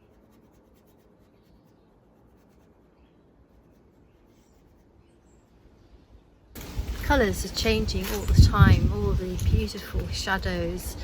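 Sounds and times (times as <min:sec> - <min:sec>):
pencil scratching on paper: 0:00.0 - 0:05.3.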